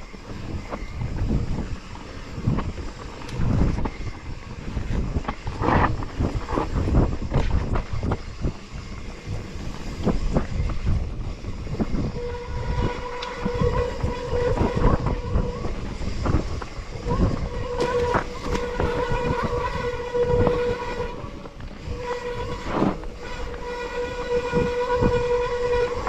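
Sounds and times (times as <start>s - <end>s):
bicycle rattling over rough trail: 0.0s - 26.0s
steady wavering whine: 0.0s - 26.0s.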